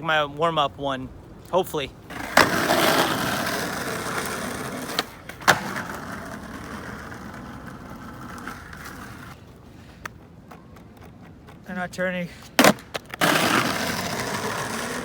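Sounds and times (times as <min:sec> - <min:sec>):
skateboard rolling on wet pavement: 0:02.0 - 0:09.5, 0:12.6 - 0:15.0
skateboard clack: 0:02.1 - 0:09.4, 0:12.4 - 0:15.0.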